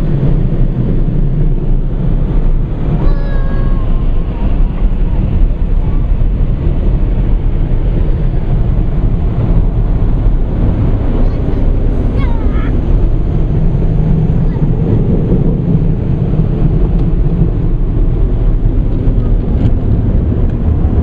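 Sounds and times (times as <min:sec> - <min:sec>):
child crying out: 0:03.0 - 0:04.1.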